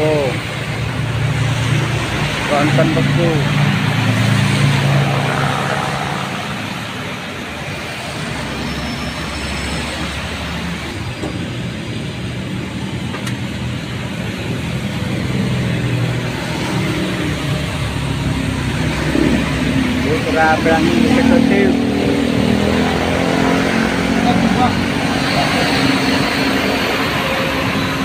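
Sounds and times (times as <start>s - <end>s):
heavy engine hum: 0.0s - 28.0s
tyres hissing on wet road: 1.6s - 11.7s.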